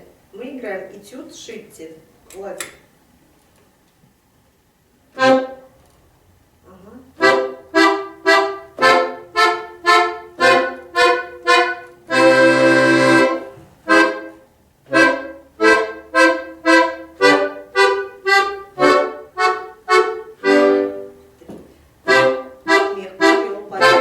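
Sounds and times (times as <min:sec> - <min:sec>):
accordion long held chord: 0:05.1 - 0:05.7, 0:07.2 - 0:21.2, 0:22.0 - 0:24.0
accordion staccato chords: 0:05.1 - 0:05.8, 0:07.1 - 0:24.0.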